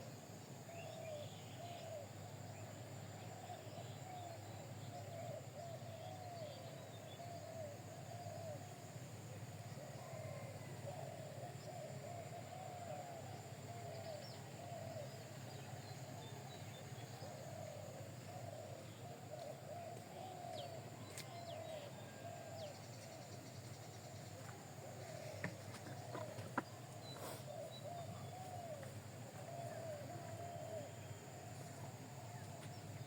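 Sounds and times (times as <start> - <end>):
low arching bird calls: 9.8 - 31.2
faint higher bird chirps: 27.0 - 31.2.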